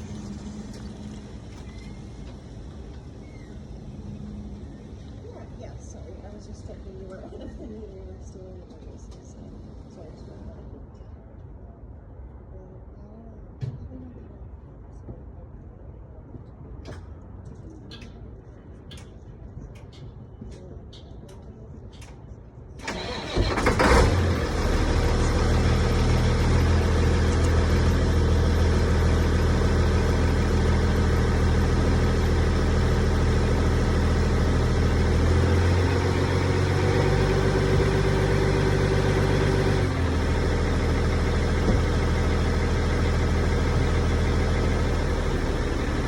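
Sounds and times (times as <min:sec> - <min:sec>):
diesel truck engine idling: 0:00.0 - 0:07.2, 0:22.8 - 0:46.0.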